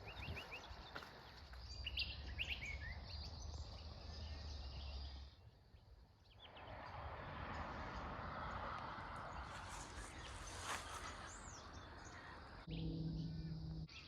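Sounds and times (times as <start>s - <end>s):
birds chirping: 0.0s - 8.1s, 9.1s - 14.0s
low steady hum: 12.6s - 14.0s.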